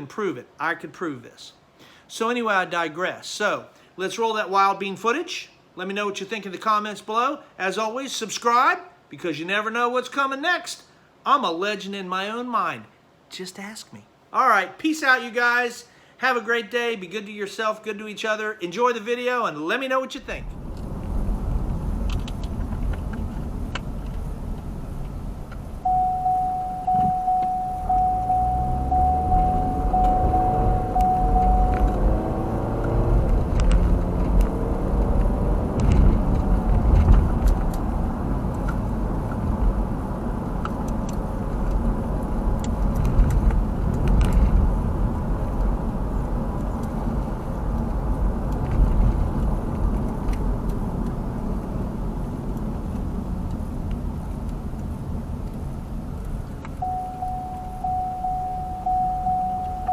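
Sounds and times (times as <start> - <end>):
road rumble: 20.2 - 59.9
in-car warning chime: 25.8 - 32.4, 56.8 - 59.9
car engine accelerating: 27.8 - 40.4.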